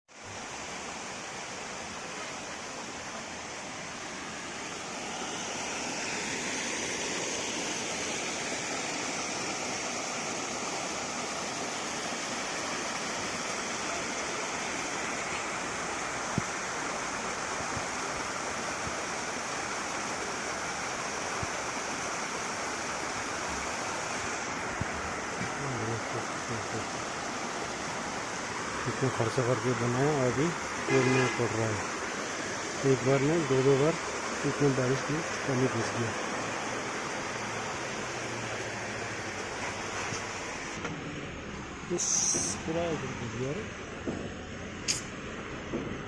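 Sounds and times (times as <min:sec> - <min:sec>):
flowing water rushing: 0:00.1 - 0:46.0.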